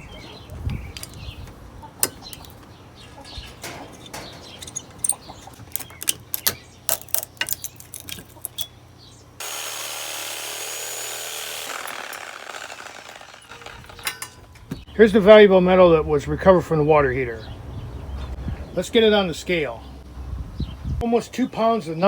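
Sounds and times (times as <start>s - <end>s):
metal parts clinking: 3.3s - 8.8s, 13.5s - 14.7s.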